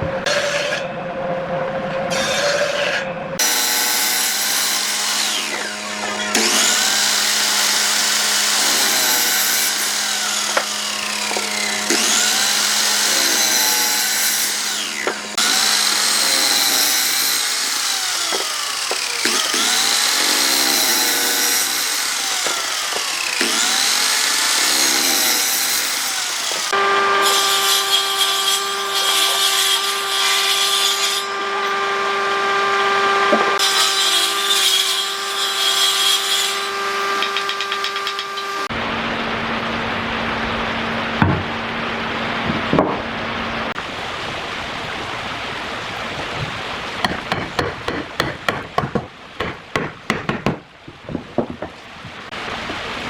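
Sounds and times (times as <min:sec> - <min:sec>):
electric power tool cutting wood: 0:02.1 - 0:43.8.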